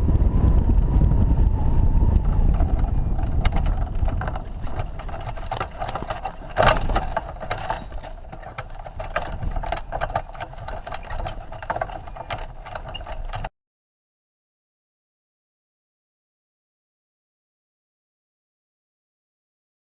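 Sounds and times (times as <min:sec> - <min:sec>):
low wind-like rumble: 0:00.0 - 0:13.5
rapid clicking and rattling: 0:01.9 - 0:13.5.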